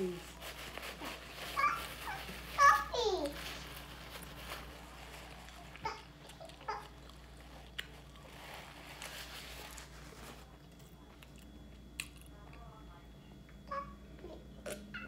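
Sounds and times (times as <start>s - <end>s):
person chewing food: 4.9s - 9.1s.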